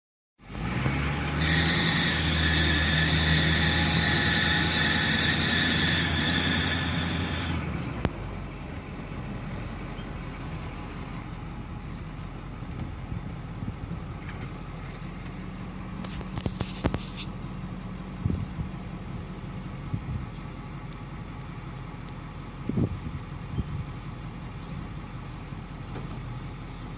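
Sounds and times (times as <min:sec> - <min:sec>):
diesel engine running: 0:00.4 - 0:26.9
high-pitched squeal: 0:00.9 - 0:07.7.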